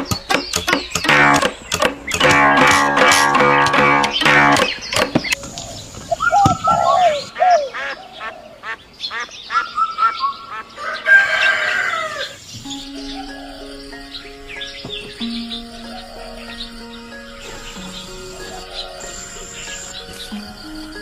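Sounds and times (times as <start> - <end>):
music: 0.0 - 5.4, 12.6 - 21.0
chickens clucking: 0.0 - 21.0
small birds chirping: 0.0 - 21.0
rooster crow-like call: 10.8 - 12.4.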